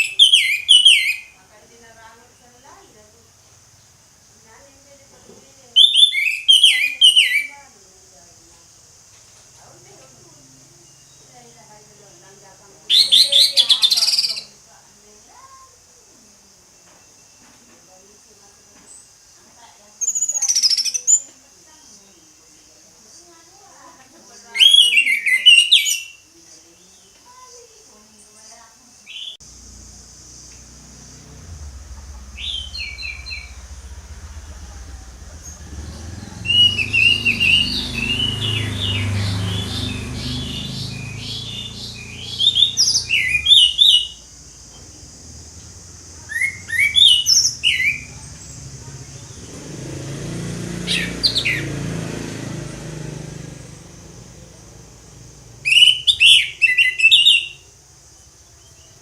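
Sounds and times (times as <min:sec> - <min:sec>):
thrush singing whistled notes: 0:00.0 - 0:01.5, 0:05.7 - 0:07.8, 0:12.8 - 0:14.6, 0:24.4 - 0:26.3, 0:29.0 - 0:59.0
steady high hiss: 0:00.0 - 0:05.8, 0:13.6 - 0:20.0, 0:26.0 - 0:51.1, 0:51.7 - 0:59.0
low rumble: 0:29.5 - 0:39.0.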